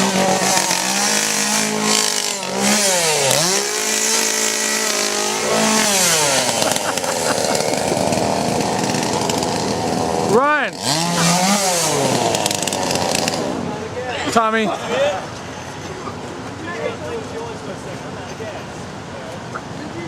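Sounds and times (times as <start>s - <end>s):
chainsaw engine at high revs: 0.0s - 13.7s.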